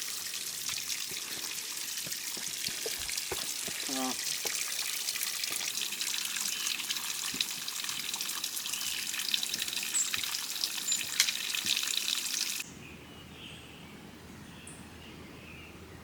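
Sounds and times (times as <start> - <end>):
running water splashing: 0.0 - 12.6.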